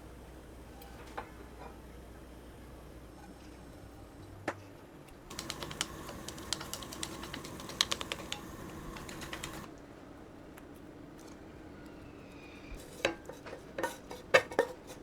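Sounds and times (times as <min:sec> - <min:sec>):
quick irregular small clicks: 0:05.3 - 0:09.7.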